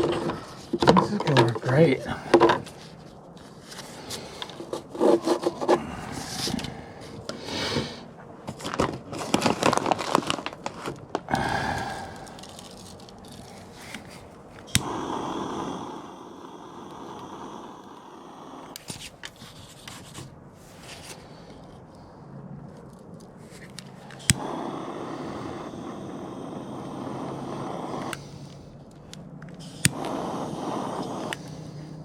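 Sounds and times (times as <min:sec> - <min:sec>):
wood scraping and rubbing: 0:00.0 - 0:06.6.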